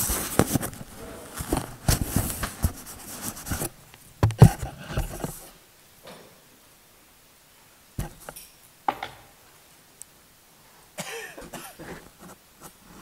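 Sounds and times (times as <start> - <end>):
objects knocking and clicking: 8.0 - 9.3.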